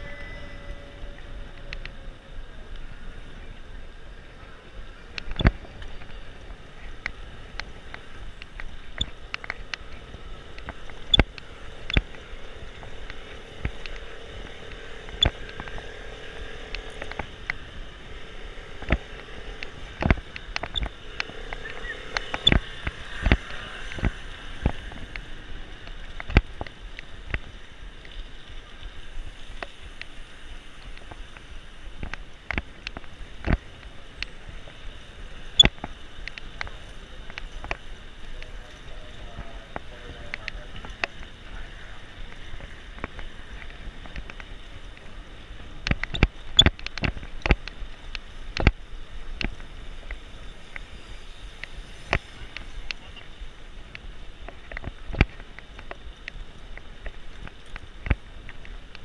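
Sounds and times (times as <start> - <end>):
faint engine hum: 0.0 - 59.0
wind and tyres on asphalt: 0.0 - 59.0.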